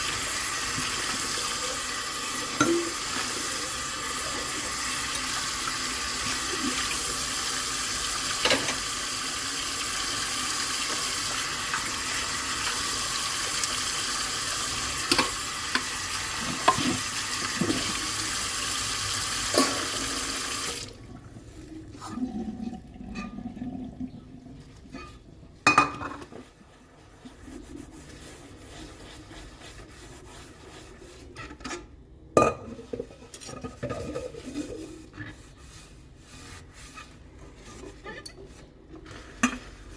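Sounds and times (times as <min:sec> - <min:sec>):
dishes clinking: 0:02.6 - 0:03.0, 0:25.0 - 0:26.3.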